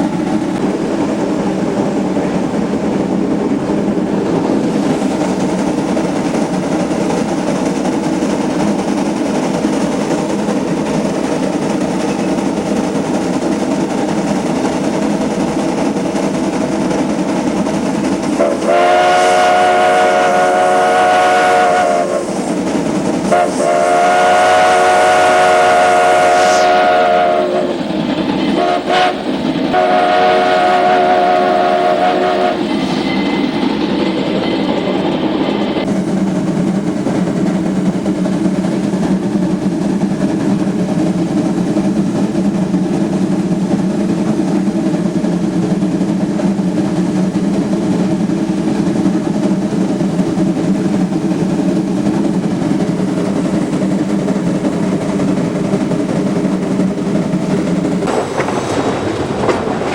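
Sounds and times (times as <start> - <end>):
steam locomotive working: 0.0 - 59.9
steam whistle blasts: 18.4 - 22.4, 23.3 - 27.8, 28.5 - 32.7.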